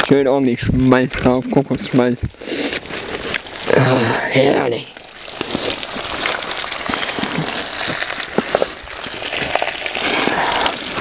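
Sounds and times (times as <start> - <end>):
food frying in fat: 0.9 - 11.0
popping of spitting fat: 4.9 - 11.0.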